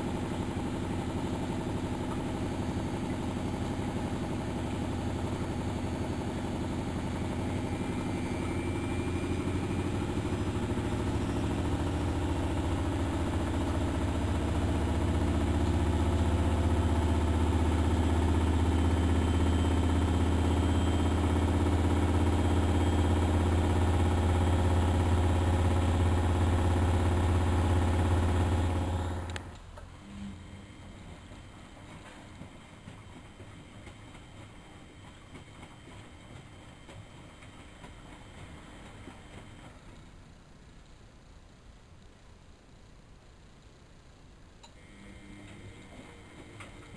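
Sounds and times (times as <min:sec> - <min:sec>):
washing machine humming: 0:00.0 - 0:46.9.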